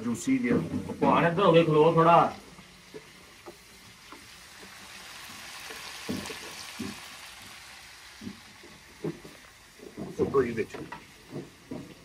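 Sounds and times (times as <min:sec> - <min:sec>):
chicken sizzling in a pan: 0:00.0 - 0:12.0
wooden spoon scraping a pan: 0:02.9 - 0:07.5.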